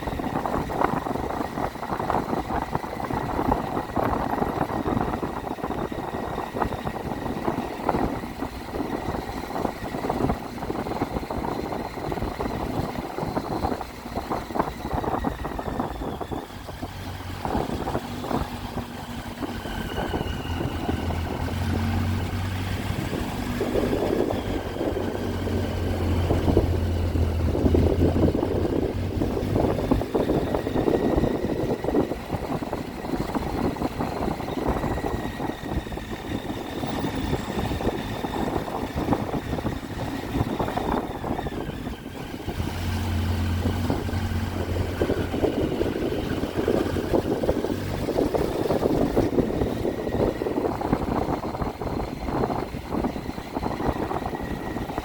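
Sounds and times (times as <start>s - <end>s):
motorcycle engine running: 0.0s - 55.0s
wind rush on microphone: 0.0s - 55.0s
deep low hum: 19.4s - 54.8s.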